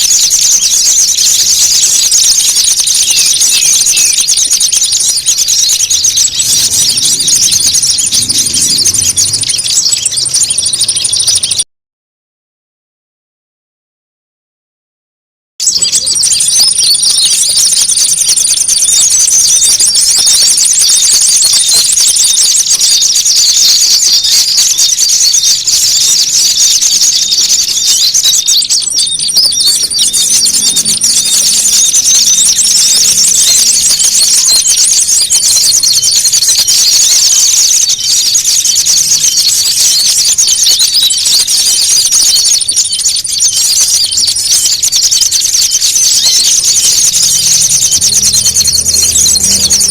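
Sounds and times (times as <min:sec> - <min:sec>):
songbirds chirping and twittering: 0:00.0 - 0:11.6, 0:15.6 - 0:49.9
thin high whine: 0:46.3 - 0:49.9.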